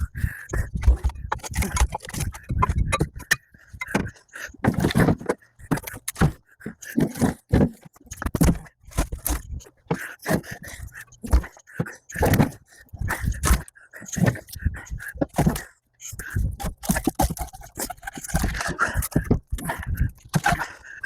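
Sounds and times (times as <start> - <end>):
firewood pieces clunking together: 0.8 - 10.6, 11.2 - 12.6.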